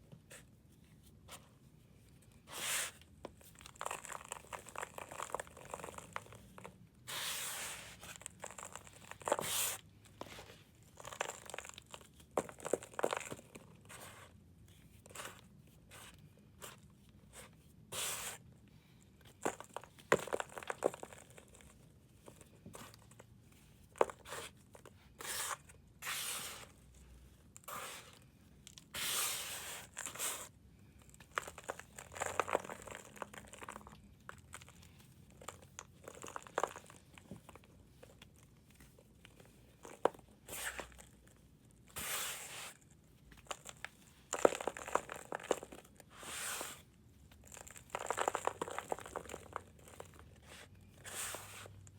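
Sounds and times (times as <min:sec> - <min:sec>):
powder blocks crumbling: 0:10.9 - 0:13.6, 0:19.4 - 0:21.8, 0:31.1 - 0:34.6, 0:43.4 - 0:46.0, 0:47.4 - 0:50.3.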